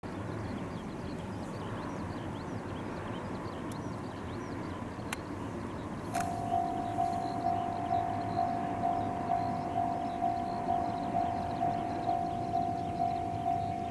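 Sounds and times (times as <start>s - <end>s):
level-crossing warning bell: 6.2s - 13.9s
short high chirps: 6.2s - 13.9s.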